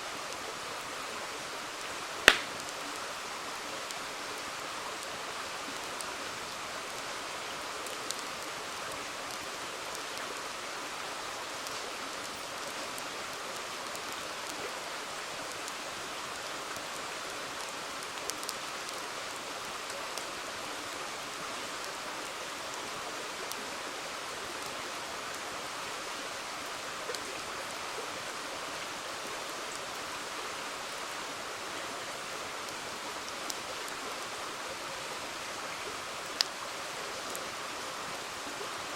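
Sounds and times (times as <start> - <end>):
campfire crackling pops: 2.1 - 3.1, 7.8 - 8.4, 11.4 - 14.6, 17.6 - 19.0.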